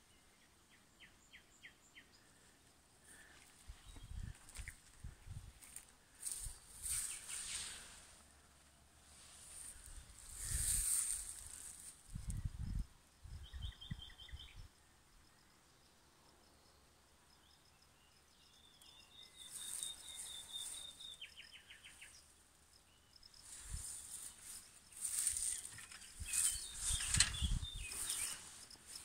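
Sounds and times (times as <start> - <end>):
wind rumble on microphone: 3.7 - 5.6, 9.9 - 11.2, 12.0 - 14.7, 26.1 - 28.2
brief rustles: 23.6 - 29.0.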